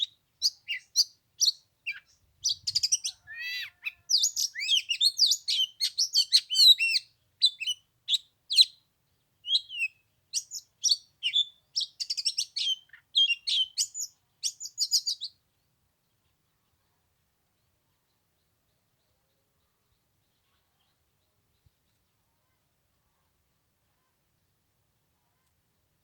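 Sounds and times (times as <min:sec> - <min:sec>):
bird singing whistles and chirps: 0:00.0 - 0:08.8, 0:09.4 - 0:15.4.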